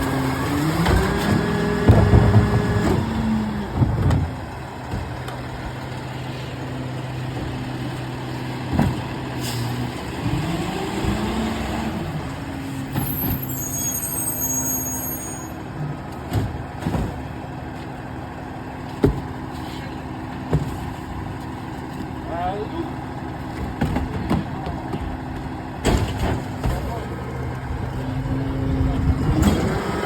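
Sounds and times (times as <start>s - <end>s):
diesel engine running: 0.0s - 30.0s
high squeal: 13.0s - 15.6s.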